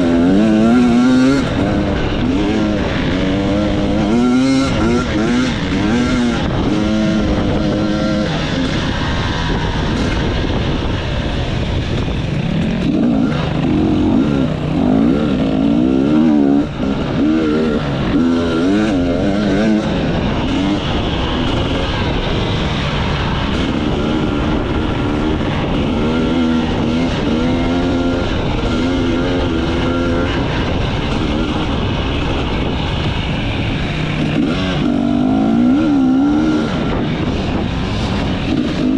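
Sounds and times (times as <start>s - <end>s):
motorcycle engine revving: 0.0s - 38.9s
steady rushing noise: 0.0s - 38.9s.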